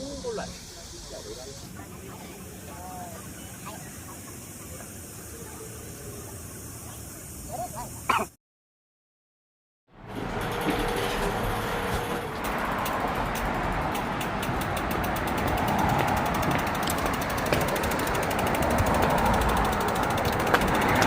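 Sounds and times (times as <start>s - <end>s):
road rumble: 10.0s - 21.0s
bicycle freewheel ticking: 10.1s - 21.0s
wind noise: 10.7s - 21.0s.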